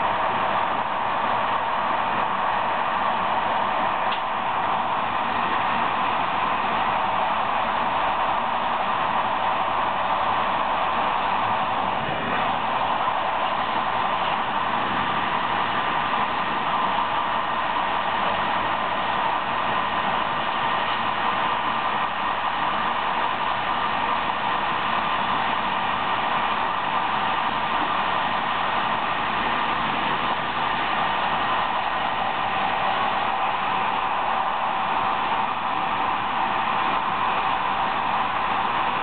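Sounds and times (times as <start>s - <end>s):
train wheels rolling on rails: 0.0s - 39.0s.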